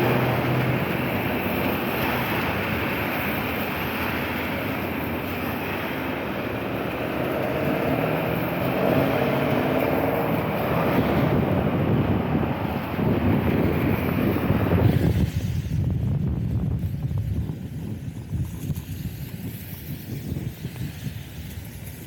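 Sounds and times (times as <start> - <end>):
street traffic hiss: 0.0 - 22.0
vehicle engine: 0.0 - 22.0.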